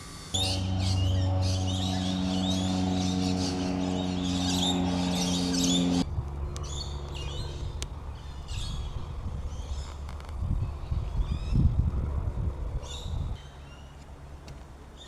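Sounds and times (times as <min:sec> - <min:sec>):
low hum: 0:00.4 - 0:09.5
small birds chirping: 0:00.4 - 0:11.7.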